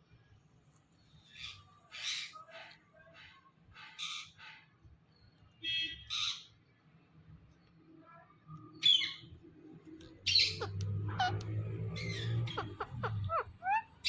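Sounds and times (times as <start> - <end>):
parrot squawking and chirping: 1.3 - 4.7, 6.0 - 6.5, 10.1 - 14.0.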